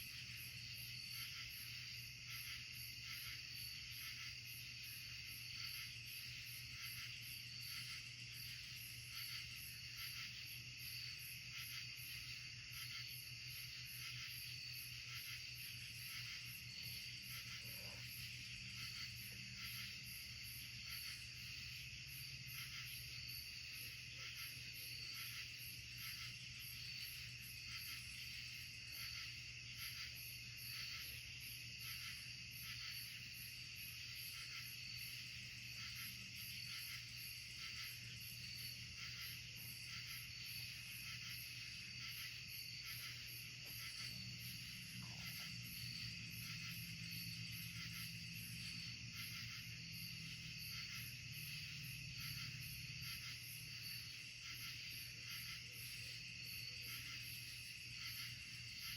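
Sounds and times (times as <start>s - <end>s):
insect high-pitched trill: 0.0s - 58.9s
pulsing insect call: 0.0s - 58.9s.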